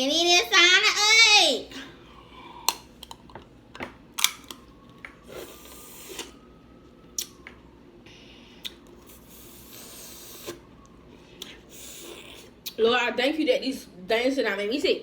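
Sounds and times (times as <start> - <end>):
crab shells cracking: 4.2 - 4.7.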